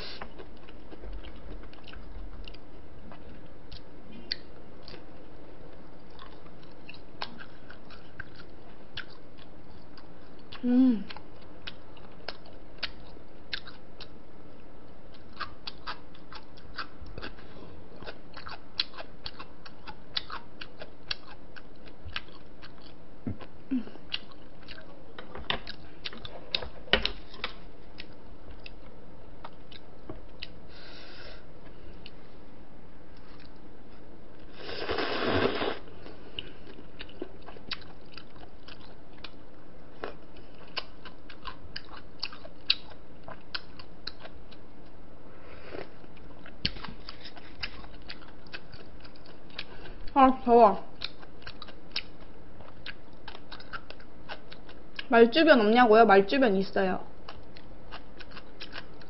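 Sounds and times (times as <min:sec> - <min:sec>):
chewing and biting: 0:00.2 - 0:05.1, 0:06.0 - 0:14.2, 0:15.1 - 0:23.0, 0:36.3 - 0:45.0, 0:46.1 - 0:50.2, 0:51.0 - 0:55.1, 0:57.2 - 0:59.0.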